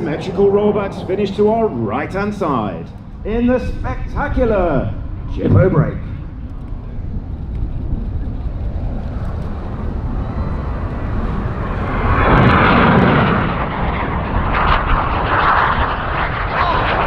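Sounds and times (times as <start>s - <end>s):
jets flying past: 0.0s - 17.0s.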